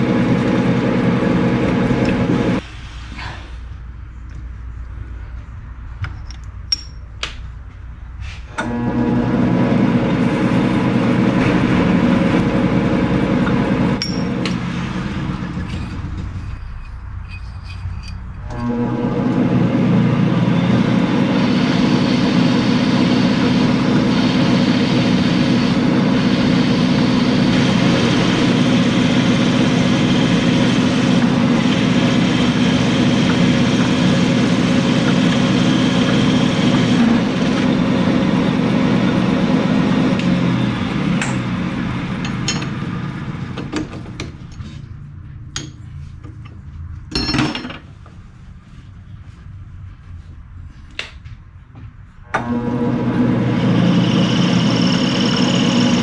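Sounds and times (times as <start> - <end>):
machine tool running: 8.6 - 16.2, 18.4 - 43.7, 52.4 - 56.0.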